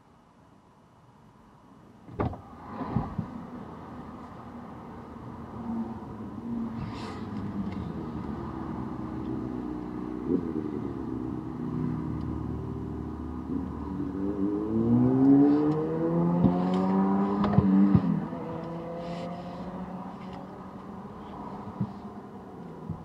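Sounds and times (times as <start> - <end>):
car engine accelerating: 5.6 - 23.0.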